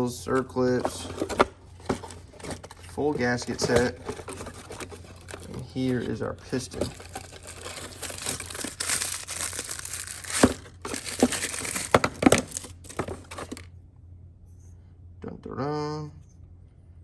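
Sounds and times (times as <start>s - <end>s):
plastic packaging crinkling: 0.6s - 13.7s.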